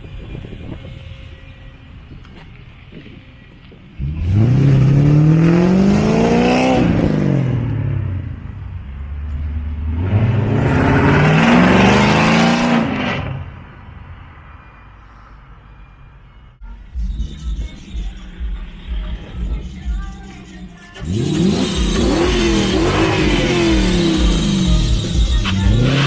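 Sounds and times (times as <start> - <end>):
car engine accelerating hard: 4.0 - 13.6, 21.0 - 26.0.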